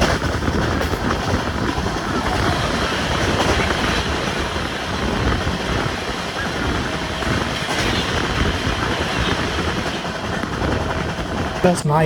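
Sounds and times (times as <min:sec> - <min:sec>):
passenger train running: 0:00.0 - 0:12.0.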